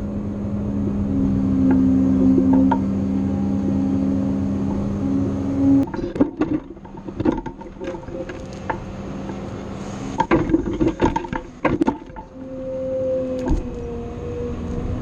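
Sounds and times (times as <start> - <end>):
grapple knocks and clanks: 5.8 - 9.5, 10.1 - 12.4.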